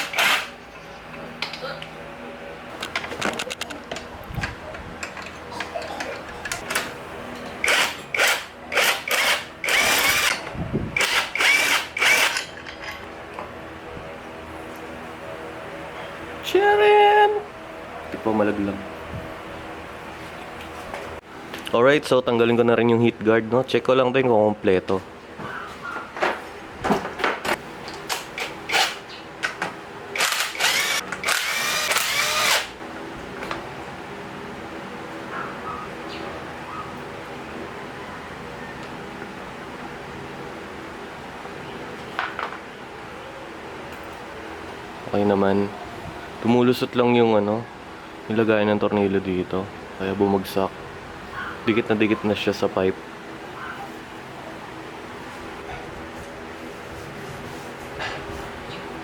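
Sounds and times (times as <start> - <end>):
power drill whining: 0.0 - 0.5, 7.6 - 10.4, 11.0 - 12.4, 30.2 - 32.7
metal parts clicking and knocking: 2.8 - 7.0.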